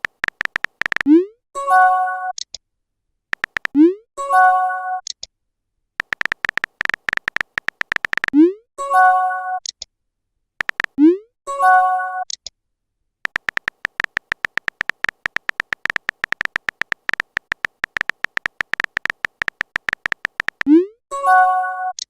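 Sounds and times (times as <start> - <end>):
phone keyboard typing clicks: 0.0 - 1.1, 3.4 - 3.8, 6.0 - 8.4, 10.6 - 11.0, 13.3 - 20.8.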